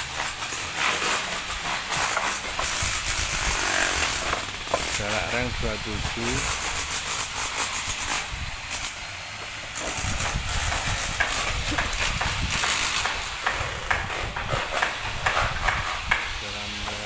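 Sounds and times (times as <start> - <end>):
steady hiss: 0.0 - 17.0
sharp knocks and clacks: 9.8 - 17.0.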